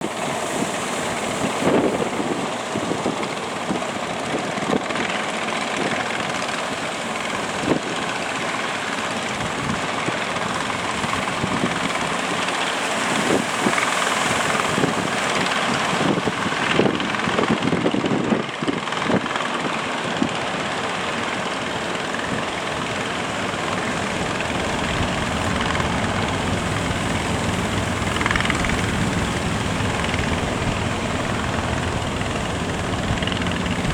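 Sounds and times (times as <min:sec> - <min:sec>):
wind buffeting microphone: 0:00.0 - 0:33.9
motor drone: 0:21.2 - 0:33.9
low thumps from gusts: 0:22.0 - 0:33.9.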